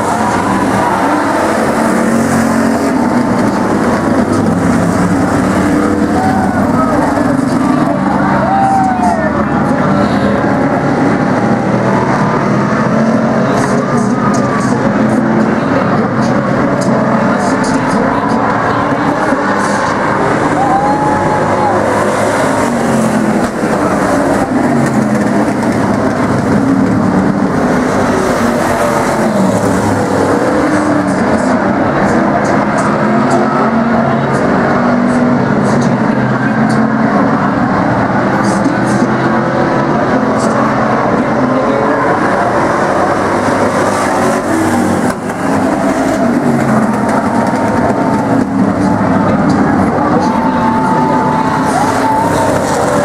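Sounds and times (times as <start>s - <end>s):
racing car engines: 0.0s - 53.0s.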